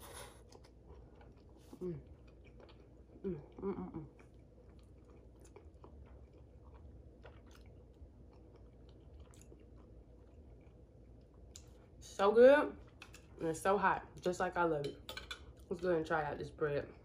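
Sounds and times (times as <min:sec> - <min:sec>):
person chewing food: 0:00.0 - 0:12.0
person humming: 0:03.2 - 0:04.1.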